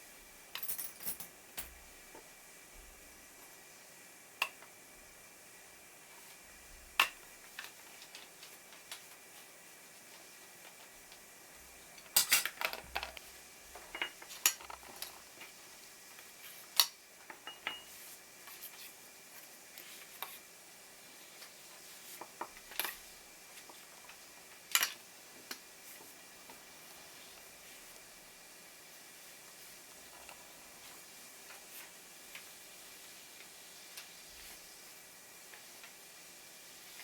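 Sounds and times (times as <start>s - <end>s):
utensils clinking against dishes: 0.6s - 1.7s, 12.0s - 13.1s, 13.8s - 15.2s, 17.3s - 17.9s.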